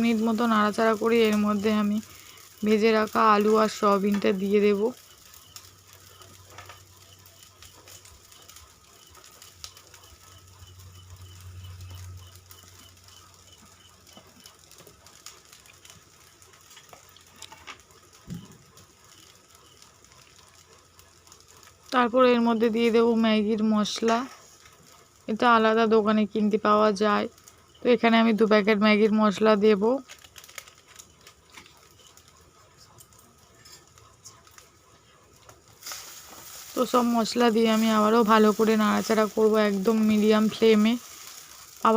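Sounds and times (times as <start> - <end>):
seasoning packets clicking and rustling: 13.6 - 20.4, 29.6 - 34.7, 35.4 - 41.9.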